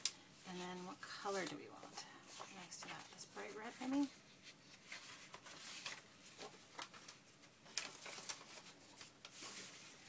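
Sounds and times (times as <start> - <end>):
paper rustling and crinkling: 2.3 - 10.0.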